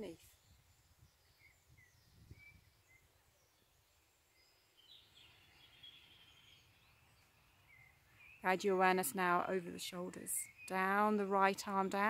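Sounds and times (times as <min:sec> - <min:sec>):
bird song warble: 0:00.0 - 0:12.0
birds chirping: 0:00.0 - 0:12.0.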